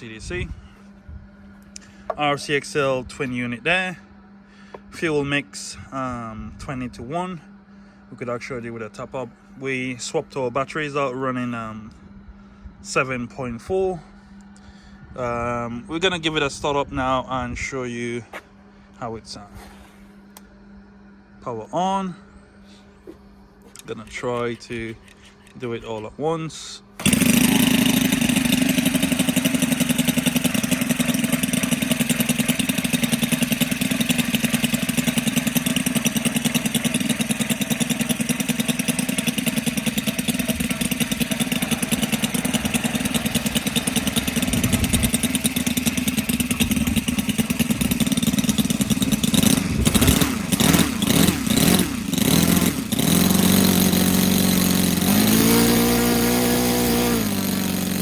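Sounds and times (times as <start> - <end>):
model aircraft engine revving: 27.0 - 58.0.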